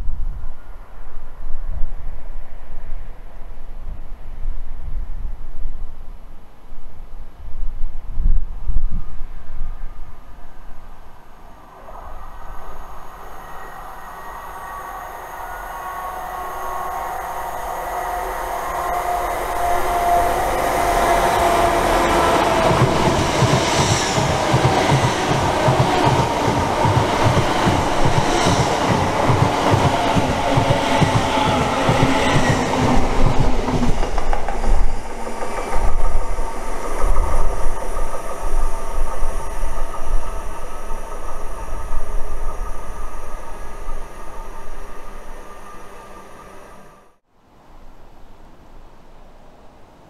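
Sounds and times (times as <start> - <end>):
deep train rumble: 11.5 - 47.2
train wheels clickety-clack: 20.8 - 42.6.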